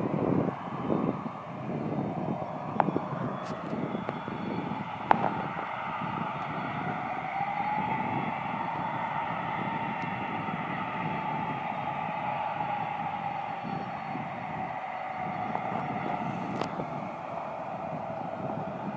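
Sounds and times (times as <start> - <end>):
jet engines rumbling and whining: 0.0 - 18.9.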